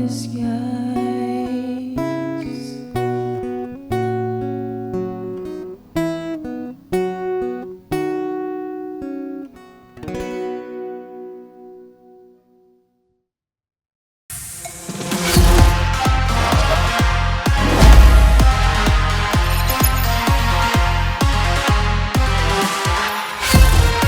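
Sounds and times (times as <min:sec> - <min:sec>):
acoustic guitar strumming: 0:02.8 - 0:11.8, 0:15.5 - 0:22.4.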